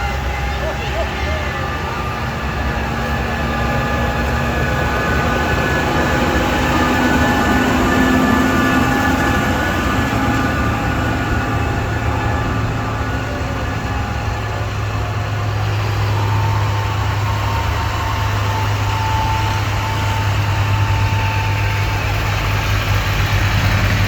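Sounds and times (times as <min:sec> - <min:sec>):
tractor engines driving past: 0:00.0 - 0:24.0.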